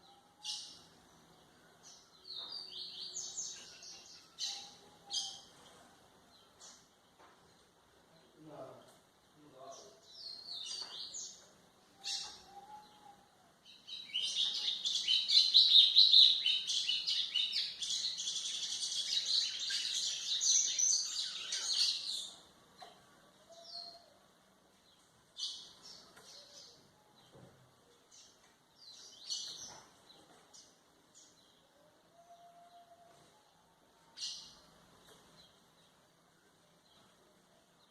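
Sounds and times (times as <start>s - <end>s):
seedeater bird singing: 13.7s - 22.5s.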